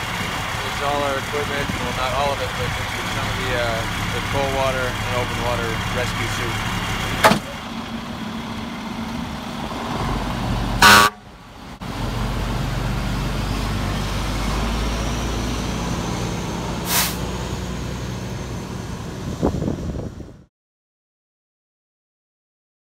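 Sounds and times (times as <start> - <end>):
truck engine running: 0.0 - 20.4
truck horn blast: 10.8 - 11.3.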